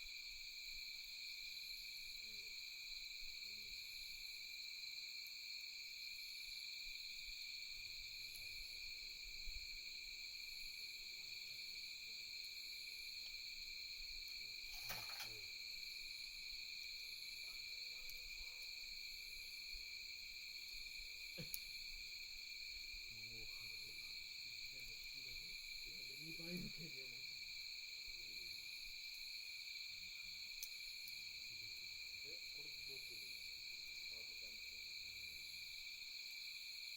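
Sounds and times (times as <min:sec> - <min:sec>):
night insects trilling: 0:00.0 - 0:36.9
campfire snap: 0:07.8 - 0:11.6, 0:12.5 - 0:26.8, 0:27.5 - 0:34.0.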